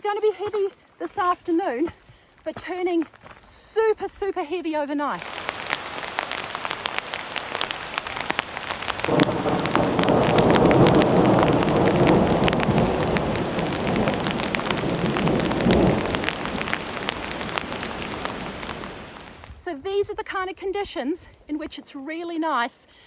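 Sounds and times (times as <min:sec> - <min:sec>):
heavy rain: 0:05.2 - 0:19.6
raindrops ticking sharply: 0:05.2 - 0:19.6
thunder rumbling: 0:05.3 - 0:19.6.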